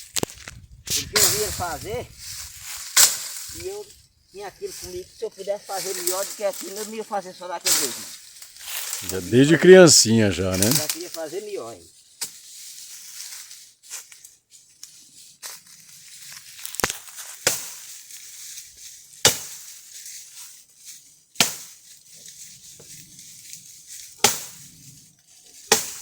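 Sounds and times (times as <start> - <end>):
axe chopping firewood: 17.4 - 17.8, 19.2 - 19.6, 21.4 - 21.8, 24.2 - 24.6, 25.7 - 26.0.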